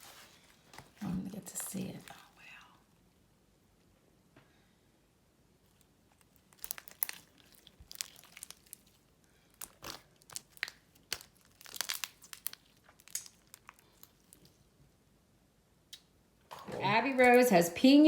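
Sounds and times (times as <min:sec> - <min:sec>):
slime crackling and crinkling: 0:00.0 - 0:02.4, 0:05.6 - 0:14.8.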